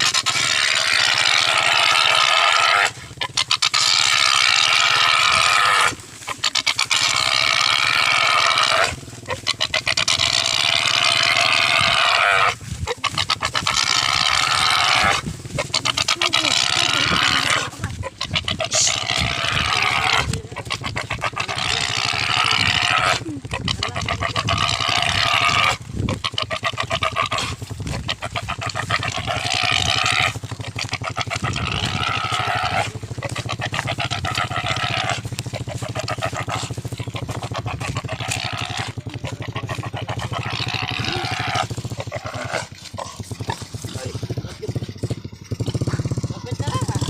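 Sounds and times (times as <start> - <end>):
pig squealing: 0.0 - 44.1
pig gasping grunts: 0.0 - 47.0.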